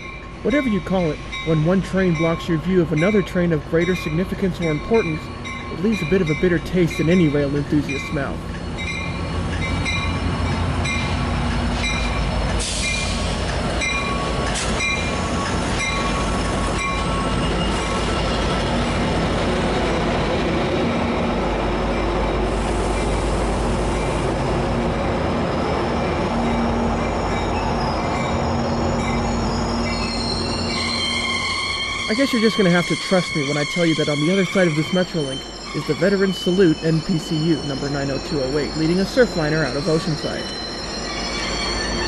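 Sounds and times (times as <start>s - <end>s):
train wheels rumbling on rail: 0.0s - 42.0s
high wheel squeals: 11.8s - 19.0s, 25.0s - 42.0s.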